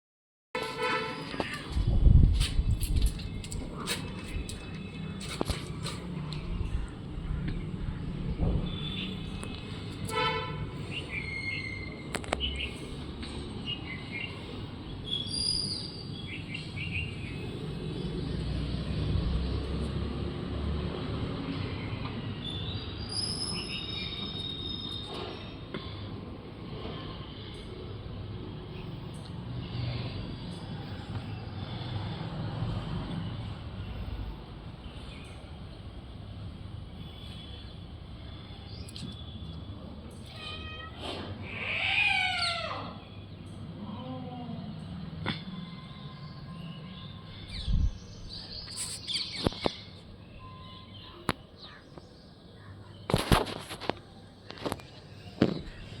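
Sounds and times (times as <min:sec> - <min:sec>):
low traffic rumble: 0:00.6 - 0:56.0
small birds chirping: 0:45.6 - 0:53.6.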